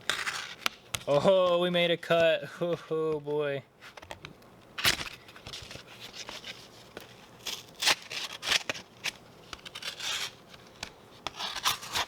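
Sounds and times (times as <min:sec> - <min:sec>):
knife slicing through cardboard: 0:07.4 - 0:10.4, 0:11.2 - 0:12.0.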